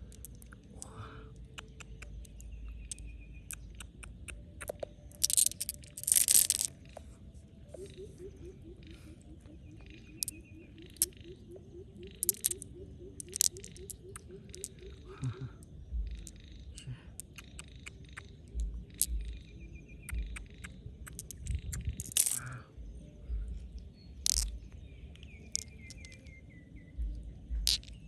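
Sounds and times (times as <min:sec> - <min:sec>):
hard objects clicking and knocking: 0:04.6 - 0:06.7, 0:24.2 - 0:24.6, 0:27.5 - 0:28.0
dull low thumps: 0:18.6 - 0:22.0, 0:23.2 - 0:23.8, 0:27.0 - 0:28.0.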